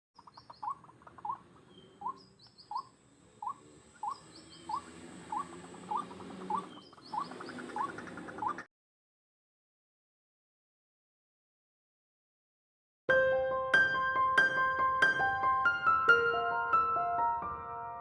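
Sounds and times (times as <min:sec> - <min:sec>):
faint high bird chirps: 0:00.2 - 0:08.7
waterhen calling: 0:00.2 - 0:08.7.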